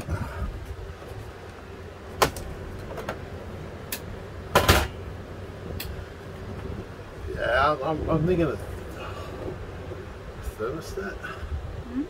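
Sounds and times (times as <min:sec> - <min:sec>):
air conditioner fan humming: 0:00.0 - 0:12.0.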